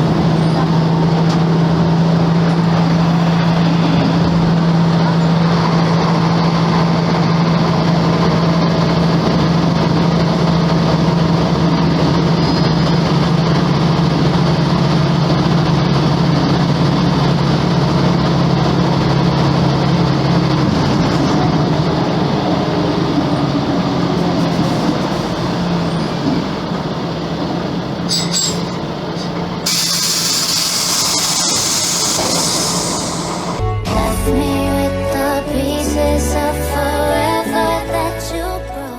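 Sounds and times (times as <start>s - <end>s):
diesel bus engine droning: 0.0s - 38.9s
compressed air hiss: 29.6s - 33.6s.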